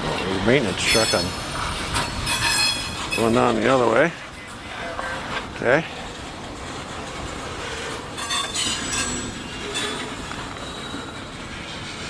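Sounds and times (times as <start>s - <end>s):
train rumbling over rails: 0.0s - 12.0s
train wheels clattering: 0.0s - 12.0s
train wheel squeals: 0.2s - 12.0s.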